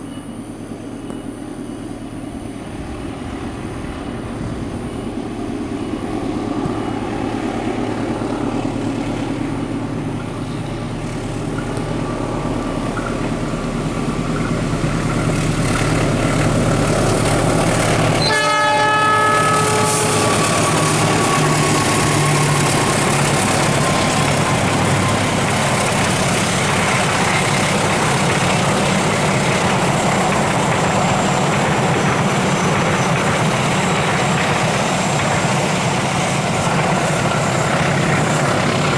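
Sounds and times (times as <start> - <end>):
diesel locomotive engine running: 0.0 - 38.9
train wheels rumbling on rails: 0.0 - 38.9
train horn blast: 18.1 - 23.0.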